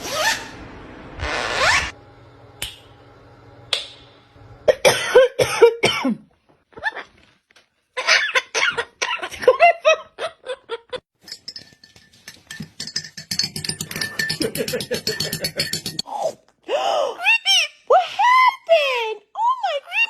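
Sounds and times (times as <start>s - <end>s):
parrot calling harshly: 0.0s - 0.6s.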